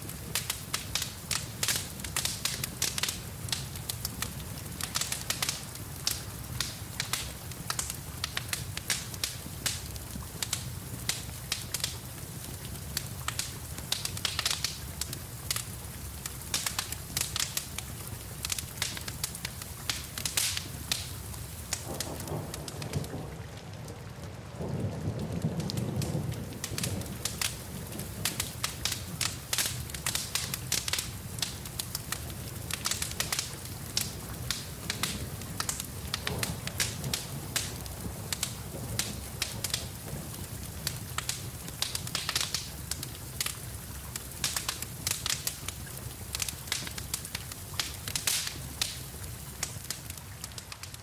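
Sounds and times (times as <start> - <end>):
steady rain: 0.0 - 51.0
wood fire crackling: 0.0 - 51.0
low rumble of thunder: 21.9 - 28.6, 36.2 - 40.8.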